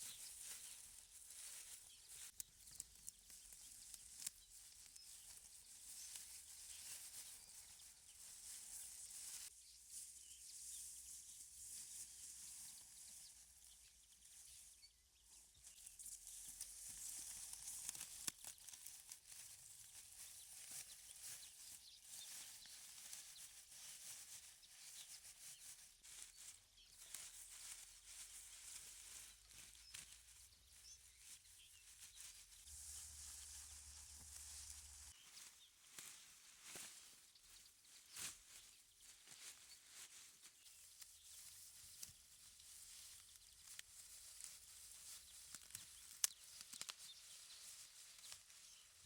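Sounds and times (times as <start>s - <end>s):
small clicks and ticks: 0.5s - 7.3s, 15.7s - 21.4s, 45.2s - 47.3s.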